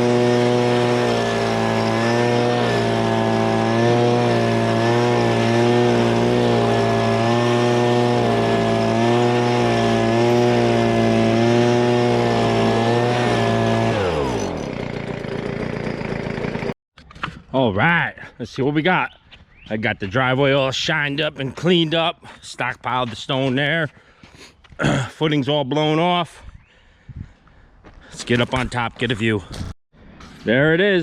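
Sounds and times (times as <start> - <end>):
leaf blower running: 0.0 - 16.8.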